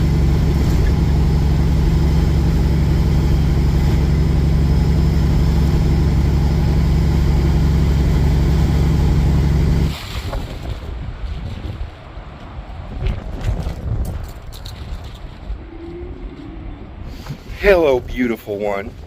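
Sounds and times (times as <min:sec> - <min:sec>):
diesel truck engine running: 0:00.0 - 0:10.0
wind on microphone: 0:09.8 - 0:19.0.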